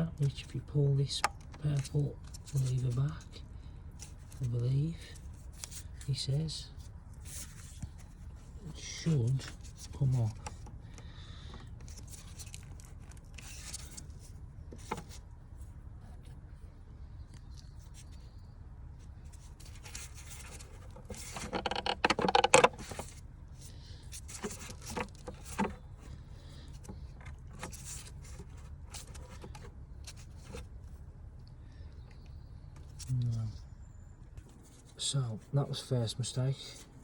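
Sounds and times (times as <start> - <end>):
steady low hum: 0.0 - 37.0
plastic connector clicking and scraping: 9.5 - 15.3, 19.3 - 30.7
rattling and scraping: 19.2 - 31.0.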